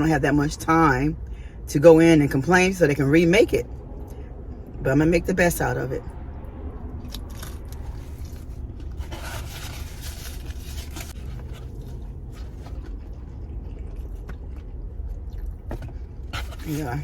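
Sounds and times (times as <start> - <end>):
steady low rumble: 0.0 - 17.0
crunching hard pizza crust: 7.0 - 17.0.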